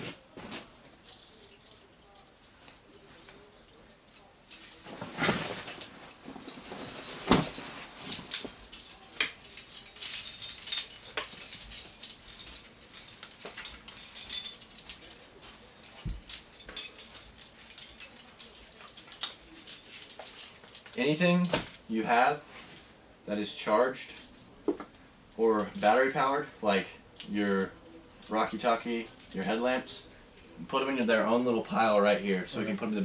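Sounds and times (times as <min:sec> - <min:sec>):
metal gear clinking: 0:01.0 - 0:21.9.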